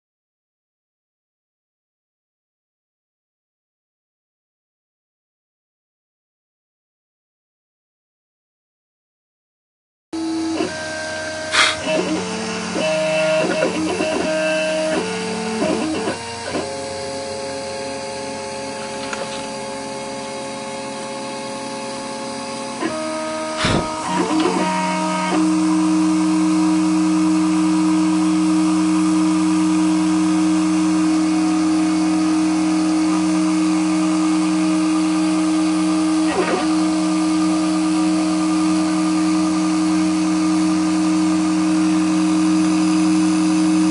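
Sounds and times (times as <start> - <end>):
cnc machine motors whining: 10.2 - 43.9
short clicks: 11.6 - 11.8.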